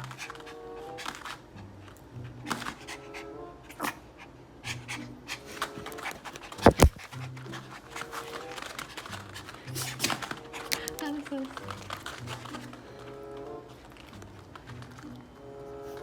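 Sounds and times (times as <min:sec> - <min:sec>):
dog panting: 0:00.0 - 0:14.2
loud thump: 0:06.6 - 0:07.0.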